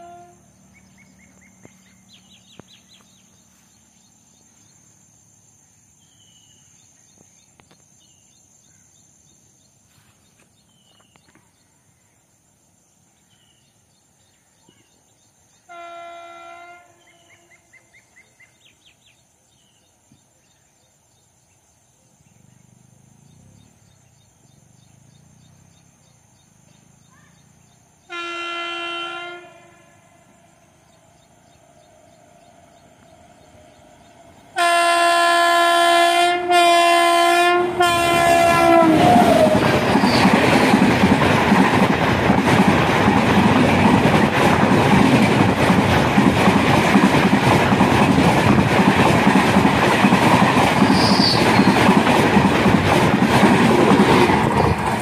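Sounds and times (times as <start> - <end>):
locomotive horn blasts: 0.0 - 0.5, 15.7 - 17.4, 28.1 - 30.1, 34.6 - 39.6
train coaches rushing past: 28.8 - 55.0
clickety-clack of train wheels: 38.4 - 55.0.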